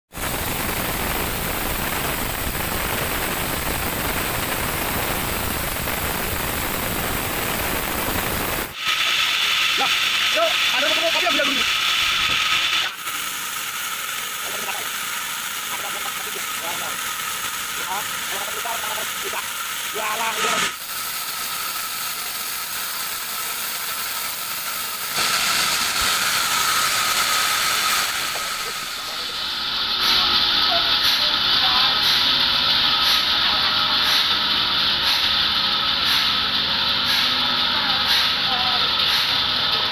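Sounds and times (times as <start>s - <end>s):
machinery high whine: 0.1s - 39.9s
steady static hiss: 0.2s - 8.8s
bandsaw cutting log: 6.6s - 39.9s.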